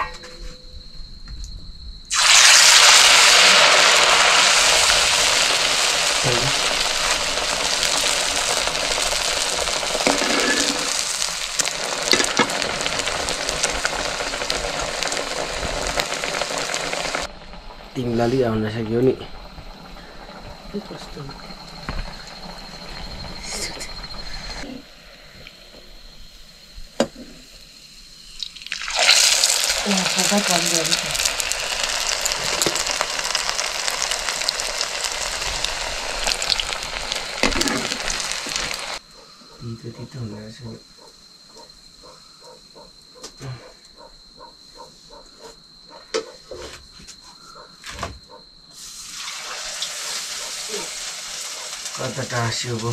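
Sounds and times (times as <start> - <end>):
food sizzling in hot oil: 2.1 - 39.0, 48.7 - 52.9.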